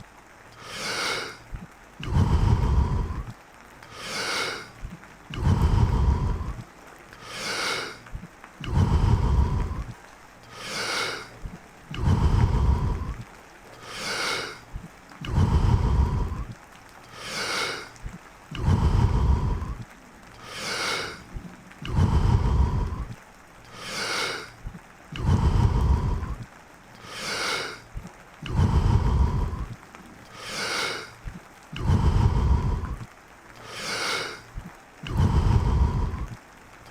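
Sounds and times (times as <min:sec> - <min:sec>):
deep forceful breathing: 0:00.0 - 0:36.9.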